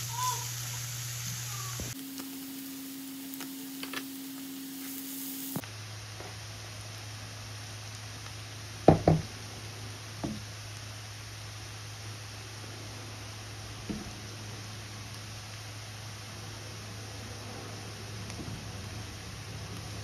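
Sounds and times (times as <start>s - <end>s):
low hum: 0.0s - 20.0s
onions sizzling in oil: 0.0s - 20.0s
sharp knocks: 8.9s - 9.3s.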